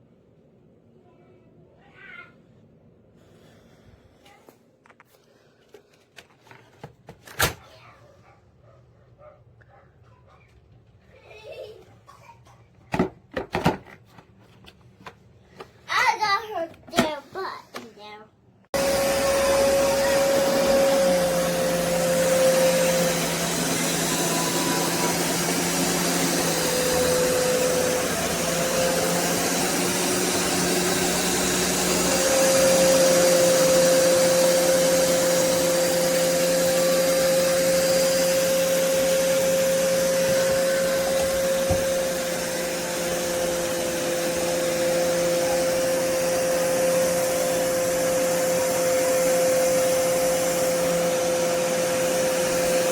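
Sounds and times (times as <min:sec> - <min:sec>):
carpet cleaner motor whining: 0:18.7 - 0:52.9.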